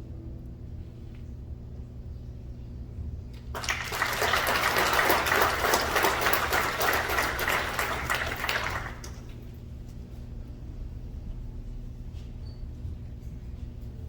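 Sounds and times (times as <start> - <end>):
group of people clapping: 3.5 - 9.4.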